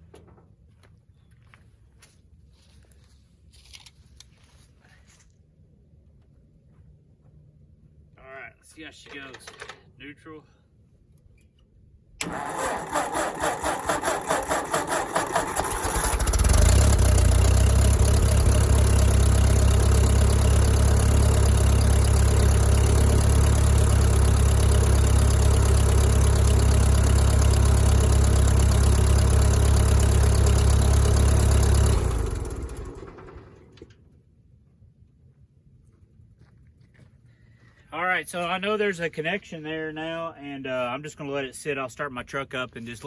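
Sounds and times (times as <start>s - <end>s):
tractor engine cranking: 9.0s - 9.9s, 12.2s - 34.0s
tractor engine running: 12.2s - 34.1s.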